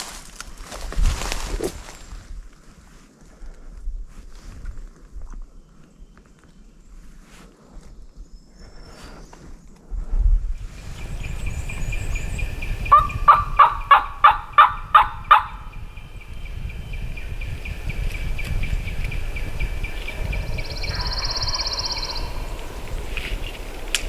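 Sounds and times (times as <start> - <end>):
wind rumble: 10.0 - 24.0
bird buzzing trill: 10.6 - 24.0
turkey yelping: 12.2 - 16.1, 18.8 - 23.9.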